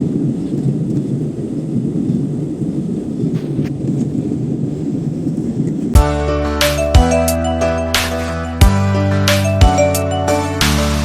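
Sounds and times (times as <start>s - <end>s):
airliner cabin rumble: 0.0s - 10.6s
music over cabin speakers: 6.0s - 11.0s.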